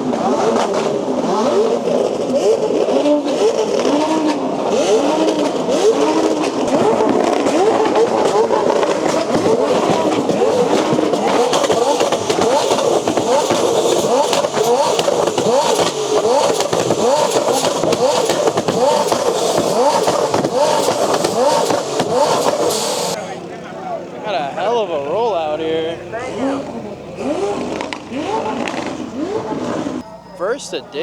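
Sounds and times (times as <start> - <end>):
car engines revving: 0.0 - 31.0.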